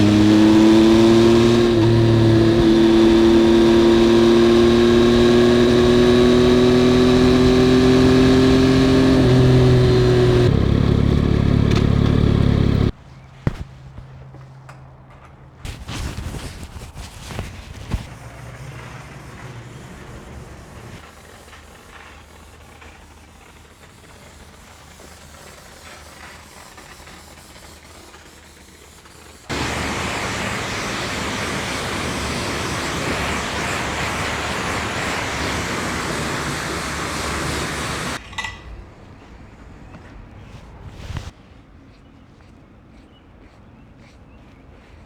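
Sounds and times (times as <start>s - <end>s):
motorcycle engine at low revs: 0.0s - 14.1s, 29.5s - 38.2s.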